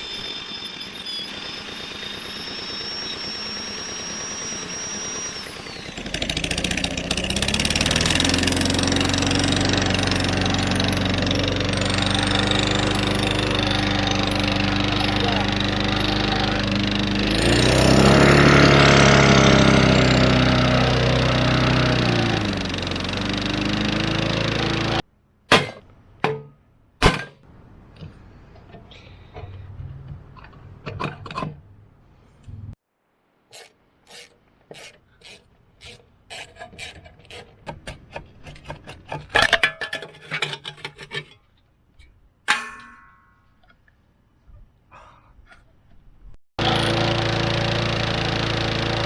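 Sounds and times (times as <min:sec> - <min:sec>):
lawnmower engine running: 0:00.0 - 0:25.0, 0:46.6 - 0:49.0.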